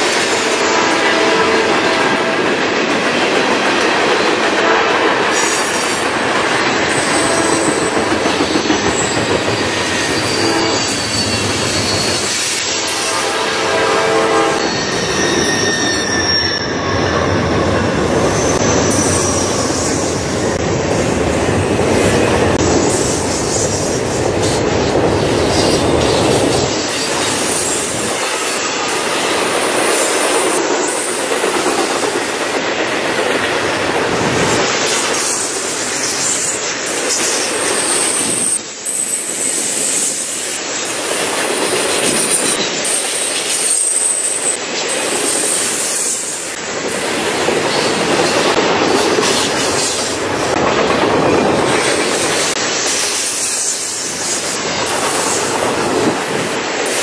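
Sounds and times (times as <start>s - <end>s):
freight train wheels on rails: 0.0s - 57.0s
wheel squeal: 6.9s - 12.7s, 14.6s - 20.0s.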